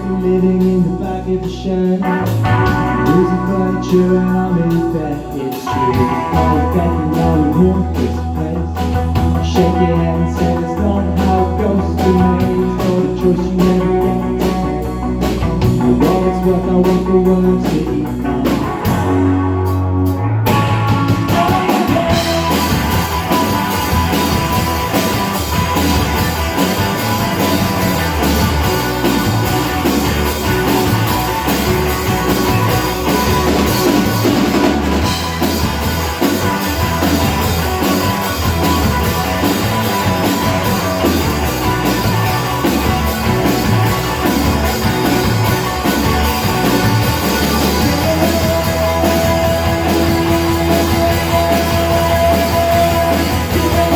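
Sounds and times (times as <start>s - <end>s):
electric guitars: 0.0s - 53.9s
rock band playing: 0.0s - 53.9s
drum kit steady beat: 20.1s - 53.9s.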